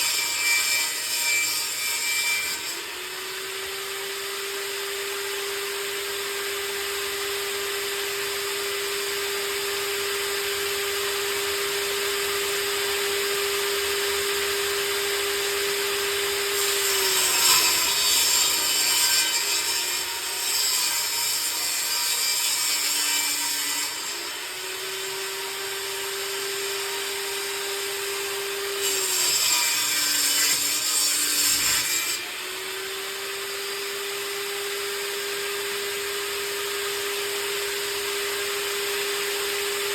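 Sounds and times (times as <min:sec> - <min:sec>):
table saw whining: 0:00.0 - 0:39.9
saw blade ripping wood: 0:16.4 - 0:24.3, 0:28.6 - 0:32.4.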